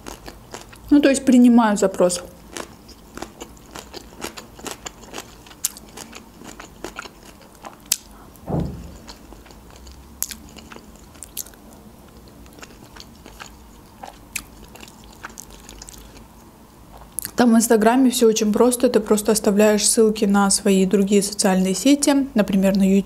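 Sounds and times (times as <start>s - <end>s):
wet chewing sounds: 0.0s - 0.9s, 2.4s - 17.4s
low thud: 8.4s - 9.2s.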